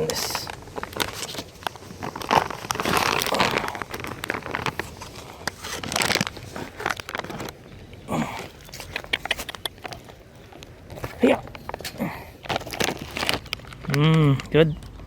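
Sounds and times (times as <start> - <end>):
plastic packet crinkling: 0.0 - 15.0.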